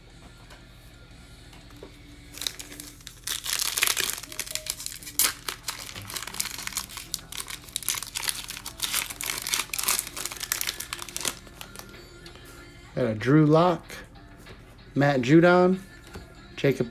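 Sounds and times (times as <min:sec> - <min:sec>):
plastic wrapper tearing and crinkling: 0:02.3 - 0:11.9.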